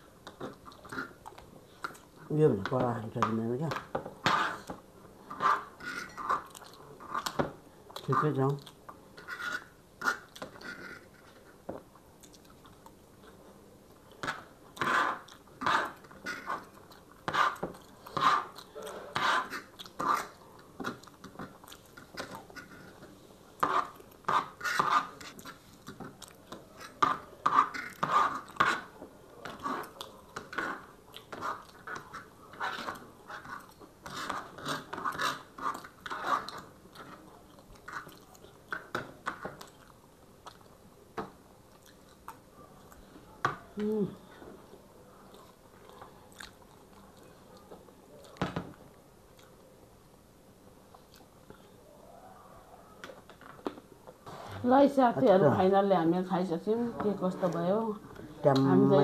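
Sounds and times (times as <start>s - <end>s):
forks scraping on tray: 5.3s - 6.5s, 9.2s - 11.4s, 26.8s - 28.9s, 29.5s - 37.2s
chewing noodles: 41.7s - 43.0s, 45.3s - 48.4s.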